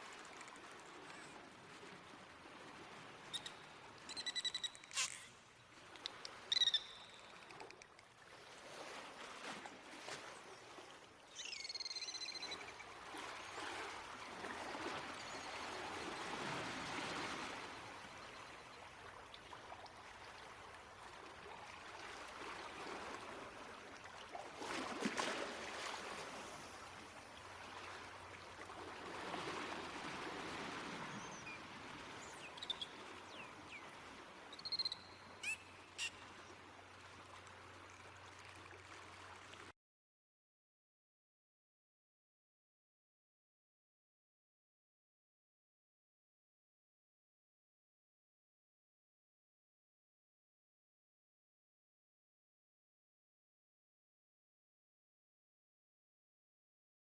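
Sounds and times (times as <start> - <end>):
water noise: 0.0 - 39.7
dolphin whistles and clicks: 3.3 - 5.4, 6.0 - 8.1, 11.4 - 12.8, 32.3 - 33.5, 34.5 - 36.2.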